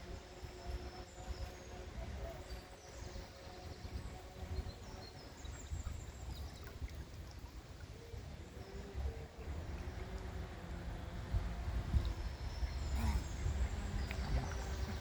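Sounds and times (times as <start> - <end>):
low uneven rumble on microphone: 0.0 - 15.0
faint bird chirps: 12.4 - 15.0.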